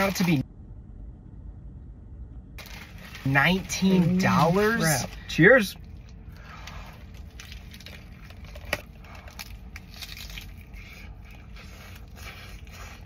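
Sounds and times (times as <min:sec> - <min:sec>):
person chewing: 0:05.8 - 0:13.0.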